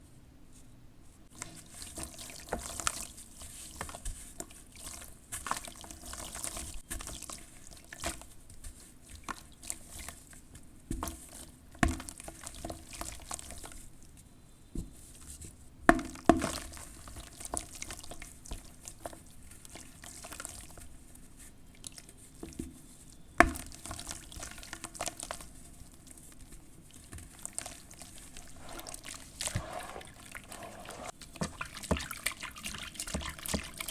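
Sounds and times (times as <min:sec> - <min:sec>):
wet ash crackling fizz: 0:26.9 - 0:33.9.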